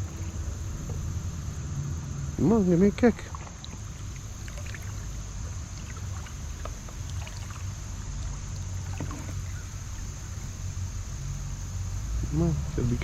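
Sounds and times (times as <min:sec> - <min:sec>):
water splashes and drips: 0:00.0 - 0:10.2.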